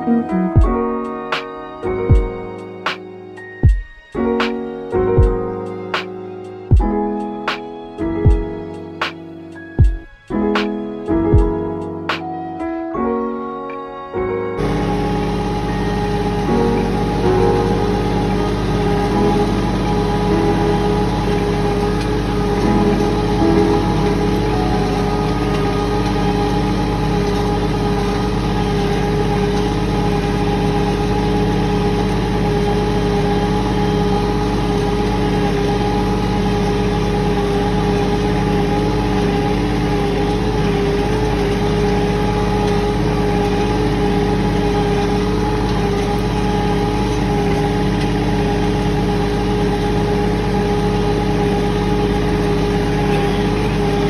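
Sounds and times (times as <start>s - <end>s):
tractor diesel engine running: 14.6s - 54.0s.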